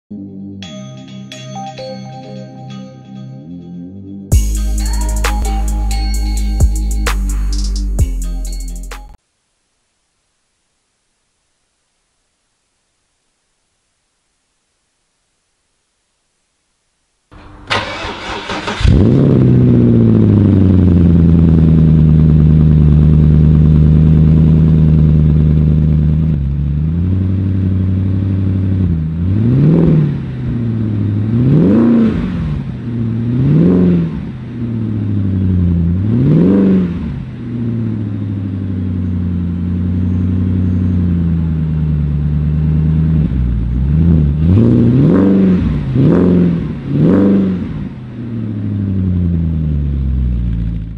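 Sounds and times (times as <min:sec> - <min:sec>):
car engine idling and revving: 0:17.4 - 0:50.9.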